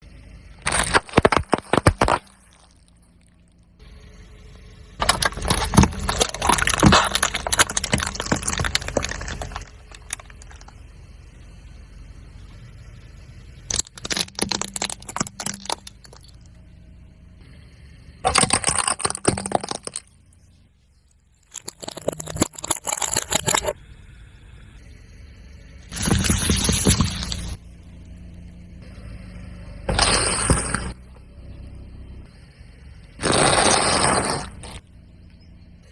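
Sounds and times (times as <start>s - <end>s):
objects crackling under car tyre: 0.6s - 3.7s, 5.0s - 11.3s, 13.5s - 16.7s, 18.2s - 20.4s, 21.3s - 23.8s, 25.8s - 29.0s, 29.9s - 31.2s, 33.1s - 35.4s.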